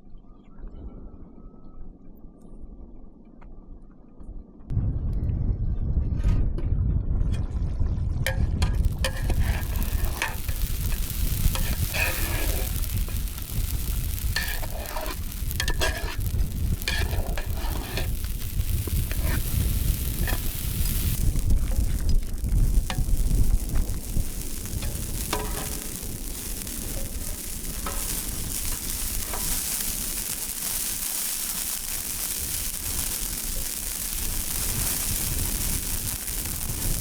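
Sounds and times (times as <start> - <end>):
low rumble: 4.3 - 30.8
food sizzling over fire: 8.3 - 37.0.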